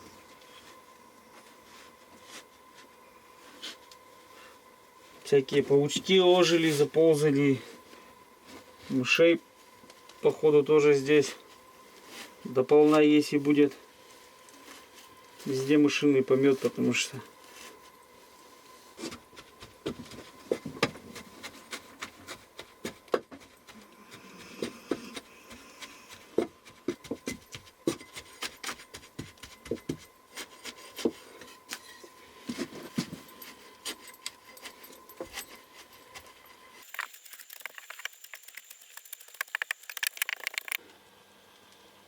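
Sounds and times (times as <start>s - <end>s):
taps knocks and rubbing on wood: 19.0s - 31.2s.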